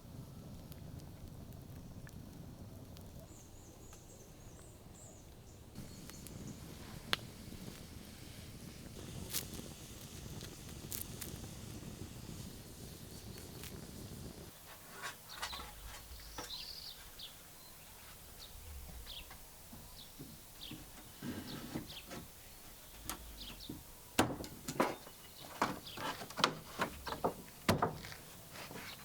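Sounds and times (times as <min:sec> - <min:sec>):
birds chirping: 0:13.0 - 0:29.0
dense low rustling: 0:15.3 - 0:24.6.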